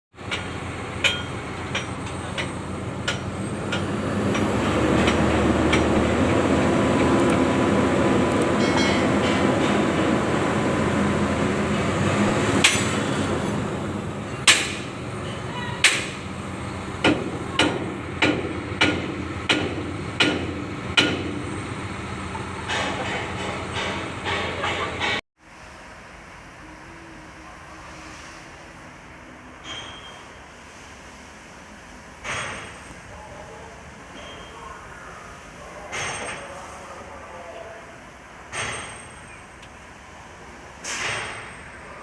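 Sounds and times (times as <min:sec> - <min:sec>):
machine running noise: 0:00.2 - 0:25.2
sharp hammer-like knocks: 0:14.5 - 0:14.9, 0:17.0 - 0:21.4.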